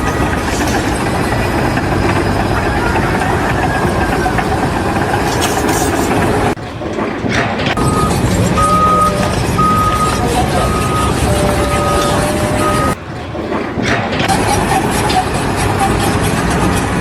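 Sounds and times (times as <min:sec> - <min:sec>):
heavy machinery engine running: 0:00.0 - 0:17.0
reversing alarm beeps: 0:07.7 - 0:13.0.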